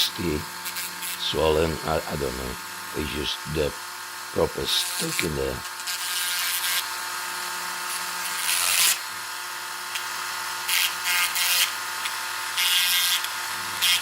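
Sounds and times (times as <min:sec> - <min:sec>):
tool scraping toy wheels: 0:04.4 - 0:07.1, 0:07.9 - 0:09.2.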